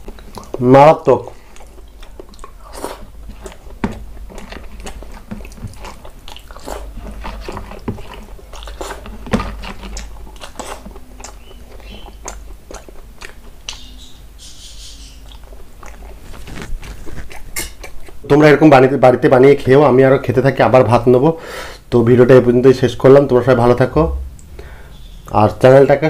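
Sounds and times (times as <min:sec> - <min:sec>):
fingers squishing rice: 0:00.0 - 0:18.2
man chewing and lip-smacking: 0:00.0 - 0:18.3.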